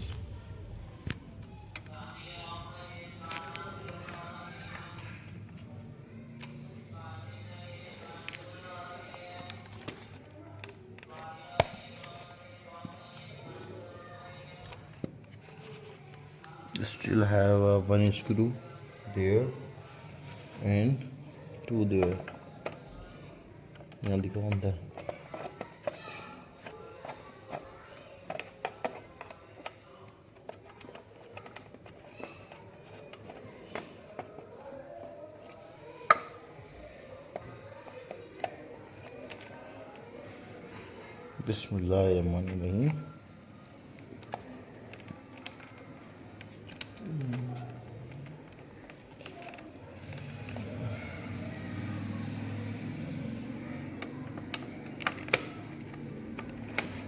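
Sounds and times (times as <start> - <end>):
faint background music: 0.0 - 57.0
plastic clips clicking and snapping: 35.4 - 40.0, 53.8 - 57.0.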